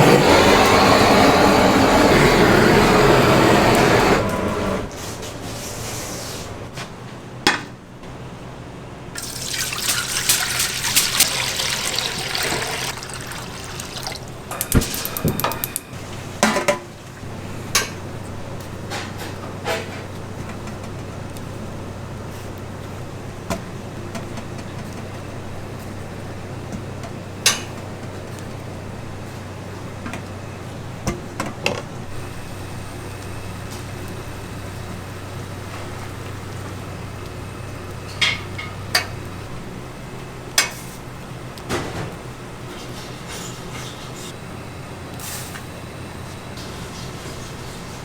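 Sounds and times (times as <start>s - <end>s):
metal utensils and pans clinking: 9.5s - 16.9s.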